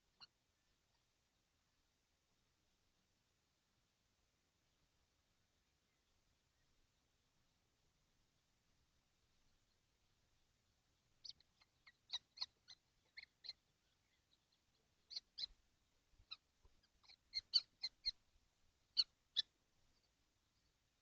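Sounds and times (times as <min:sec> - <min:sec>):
kestrels giving short high calls: 0:11.2 - 0:14.4, 0:15.1 - 0:15.6, 0:16.3 - 0:18.2.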